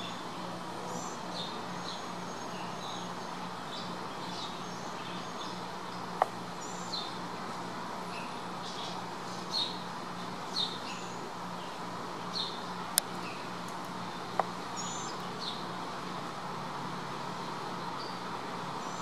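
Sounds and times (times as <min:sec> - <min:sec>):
low hum and hiss: 0:00.0 - 0:19.0
birds chirping: 0:08.1 - 0:15.8.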